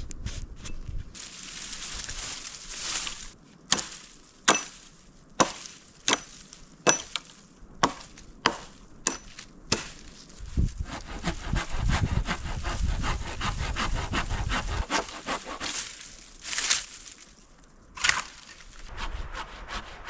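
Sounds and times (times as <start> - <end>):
wood chopping strikes: 3.0 - 10.2, 18.0 - 18.5.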